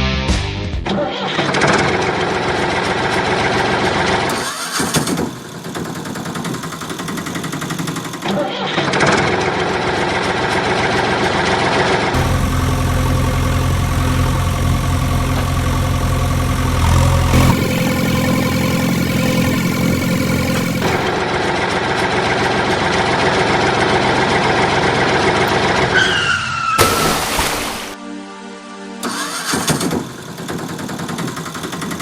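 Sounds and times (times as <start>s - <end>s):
short falling tone: 12.2s - 21.2s
loud burst of noise: 12.2s - 21.4s
vehicle engine running: 12.2s - 21.6s.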